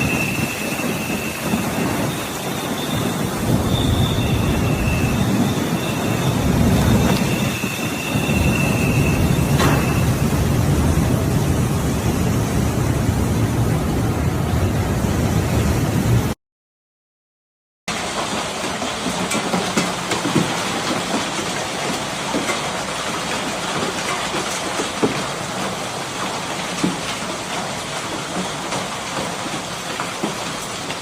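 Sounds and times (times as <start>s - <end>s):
hail and rain hiss: 0.0s - 14.0s, 17.9s - 31.0s
low rumbling storm noise: 0.0s - 16.4s
hailstones knocking hard surfaces: 17.9s - 31.0s.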